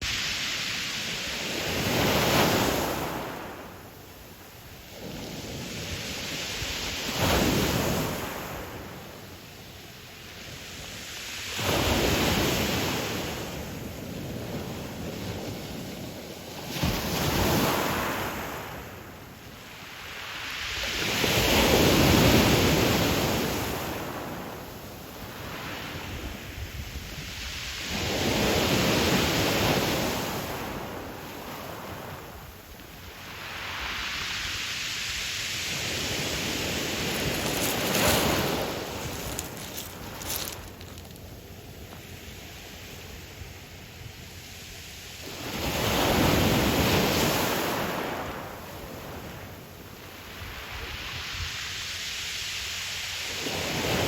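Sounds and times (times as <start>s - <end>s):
waves breaking on pebble beach: 0.0s - 3.8s, 4.8s - 9.1s, 10.4s - 19.0s, 19.7s - 26.2s, 27.4s - 43.0s.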